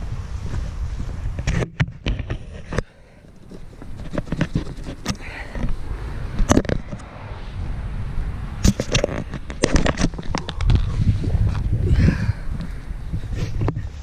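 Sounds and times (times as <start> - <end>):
wind rumbling on microphone: 0.0 - 14.0
sharp clicks and knocks: 1.4 - 5.8, 6.4 - 7.1, 8.6 - 10.9.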